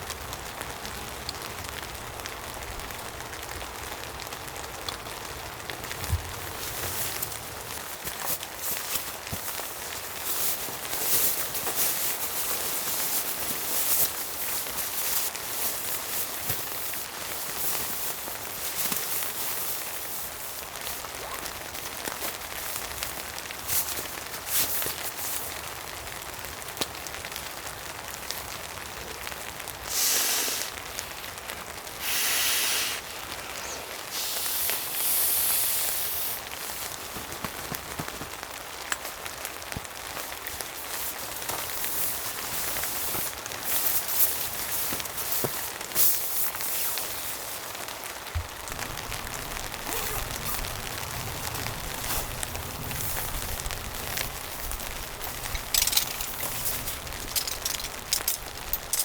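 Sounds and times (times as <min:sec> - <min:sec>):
rain pattering on a shelter: 0:00.0 - 0:59.0
hissing bursts: 0:29.9 - 0:30.8, 0:32.0 - 0:36.4
sharp ticks and crackles: 0:48.5 - 0:59.0.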